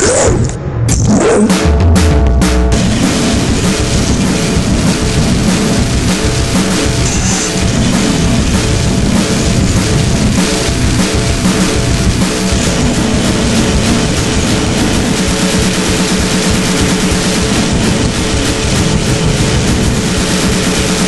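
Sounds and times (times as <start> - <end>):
heavy band music: 0.0 - 21.0
pounding drums: 0.9 - 21.0.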